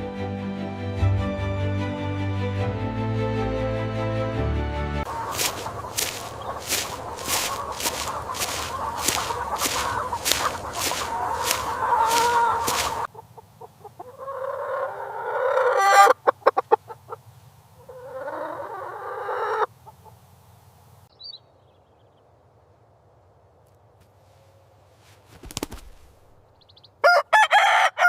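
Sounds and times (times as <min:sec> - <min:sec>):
chickens clucking: 0:05.1 - 0:20.2.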